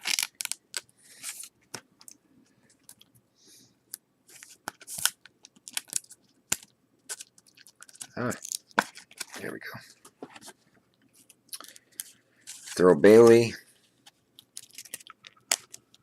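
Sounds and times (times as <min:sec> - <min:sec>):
trading cards clicking and rustling: 0:14.4 - 0:16.0.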